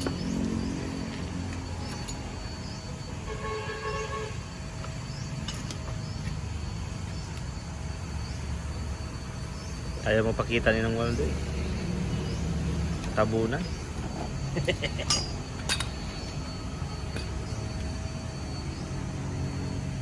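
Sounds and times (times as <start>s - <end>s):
horn-like tone: 3.2s - 4.5s
low vehicle rumble: 4.4s - 20.0s.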